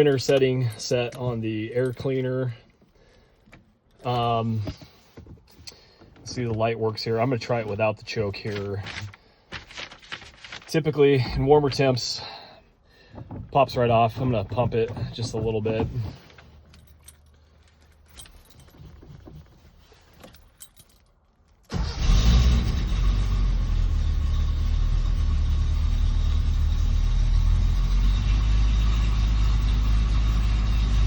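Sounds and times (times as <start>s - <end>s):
car engine starting and running: 0.0s - 18.7s, 21.6s - 31.0s
keys jingling: 14.1s - 21.7s.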